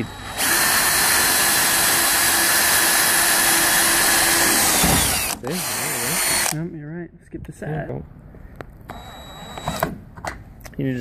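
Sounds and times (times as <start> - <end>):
electric drill boring: 0.0 - 6.6, 8.9 - 10.0.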